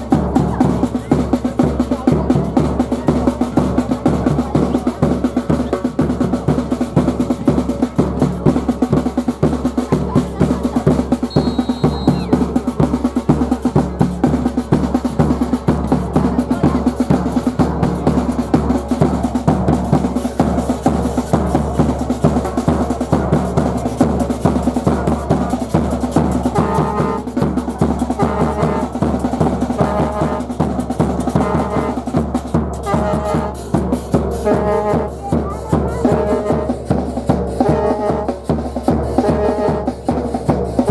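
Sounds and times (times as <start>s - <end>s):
drums beating: 0.0s - 40.9s
brass horn phrases: 26.5s - 27.3s, 28.0s - 29.0s, 29.6s - 30.6s, 31.2s - 32.1s, 32.8s - 33.7s, 34.3s - 35.2s, 36.0s - 36.8s, 37.6s - 38.4s, 39.2s - 40.0s.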